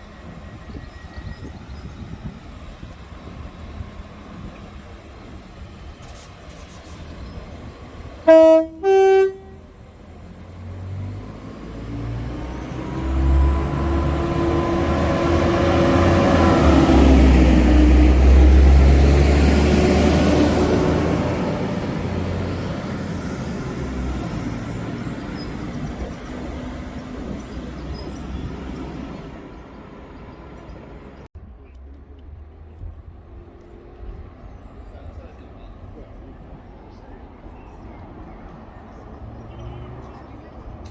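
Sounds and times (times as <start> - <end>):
train passing with deep rumble: 0.0 - 40.9
train horn two notes: 8.2 - 9.7.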